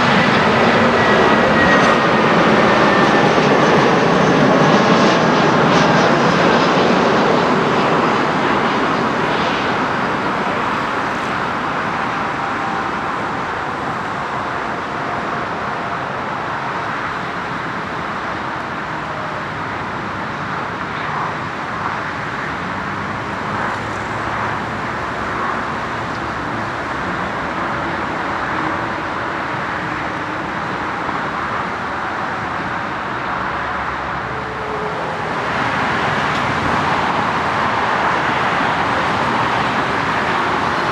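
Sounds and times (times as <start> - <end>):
jet airliner roar: 0.0 - 40.9
road traffic hum: 0.0 - 40.9.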